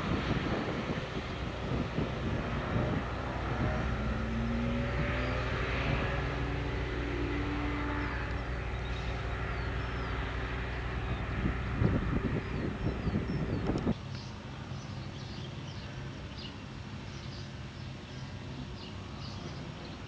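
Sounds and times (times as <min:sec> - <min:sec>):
sports car engines racing: 0:00.0 - 0:14.3.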